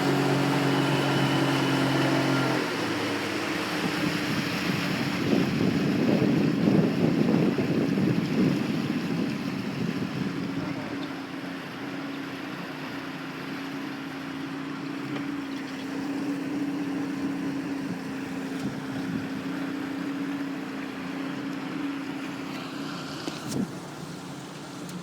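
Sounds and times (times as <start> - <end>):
wind on microphone: 0.0 - 11.0
motor running steadily: 0.0 - 25.0.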